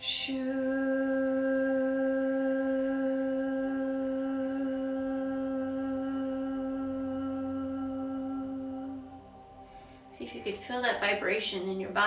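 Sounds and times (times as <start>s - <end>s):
woman humming a long tone: 0.0s - 9.6s.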